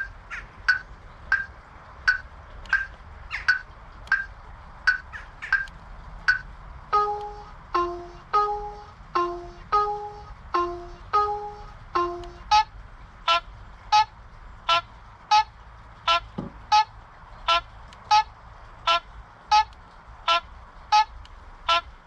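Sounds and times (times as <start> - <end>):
turn-signal beeps: 7.0 - 12.7.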